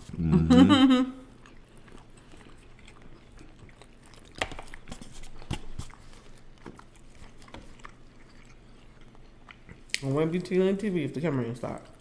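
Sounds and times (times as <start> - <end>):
chewing and wet mouth smacks: 1.3 - 10.3.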